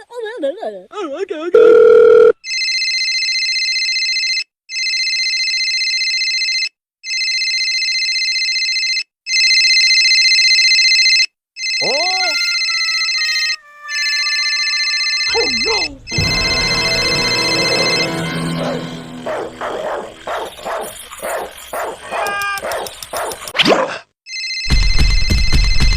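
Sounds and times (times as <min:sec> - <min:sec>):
electronic ringing tone: 0:01.6 - 0:02.3, 0:11.6 - 0:19.4
swooping pitch glides: 0:12.4 - 0:22.3.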